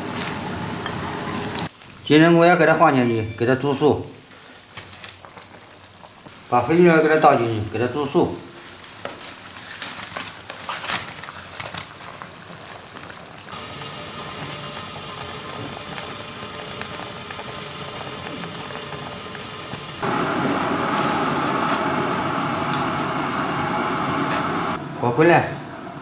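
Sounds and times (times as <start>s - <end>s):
soup hissing and bubbling: 4.2s - 24.8s.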